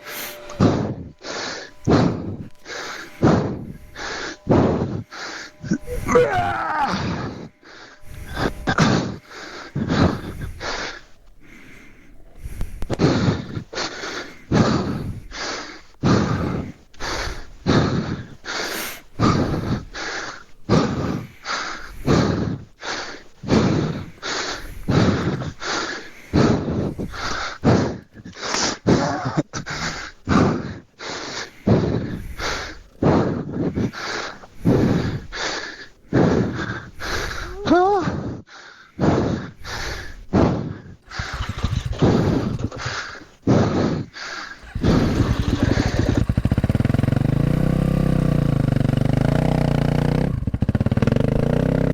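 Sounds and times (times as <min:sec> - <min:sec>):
person panting hard: 0:00.0 - 0:06.2, 0:06.9 - 0:48.3.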